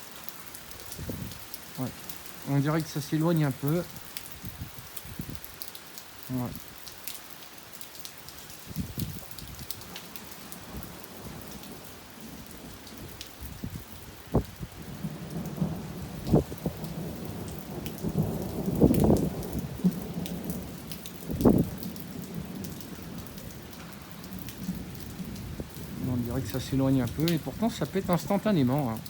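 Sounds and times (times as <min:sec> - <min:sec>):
rain falling steadily: 0:00.0 - 0:29.0
thunder cracking and rumbling: 0:00.9 - 0:01.4, 0:10.5 - 0:29.0.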